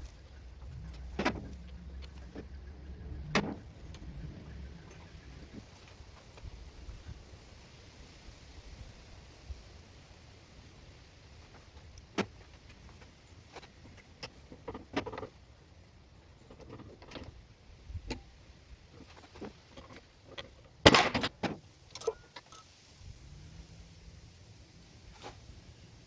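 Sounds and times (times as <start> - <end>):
tools and metal parts clicking: 19.2 - 22.7.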